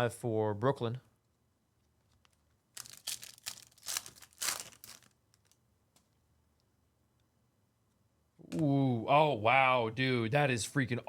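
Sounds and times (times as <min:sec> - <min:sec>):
foil wrapper tearing and crinkling: 0:02.2 - 0:05.6.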